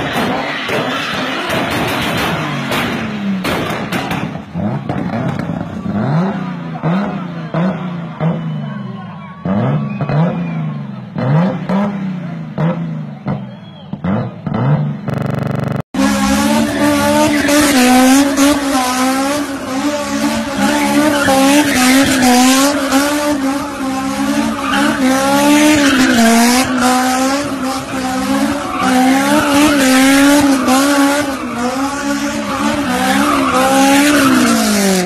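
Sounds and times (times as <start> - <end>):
car engine revving high: 9.4 - 35.0.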